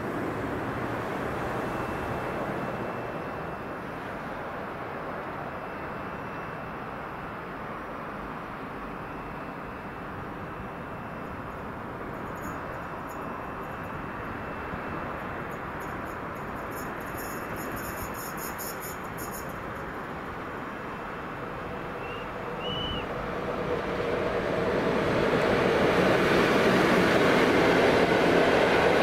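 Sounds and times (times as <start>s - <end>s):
train wheels rumbling on rail: 11.6s - 29.0s.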